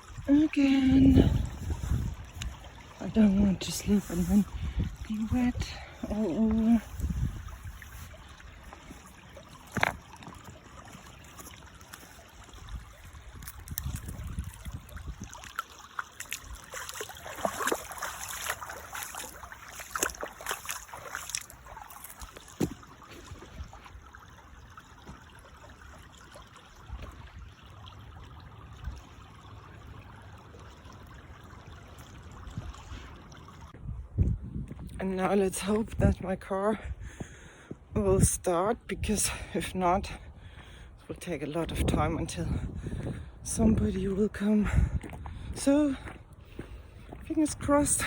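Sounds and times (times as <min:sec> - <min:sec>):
wind buffeting microphone: 0:00.0 - 0:11.2, 0:12.4 - 0:15.6, 0:33.7 - 0:41.0, 0:41.6 - 0:48.0
river water trickling: 0:00.0 - 0:48.0.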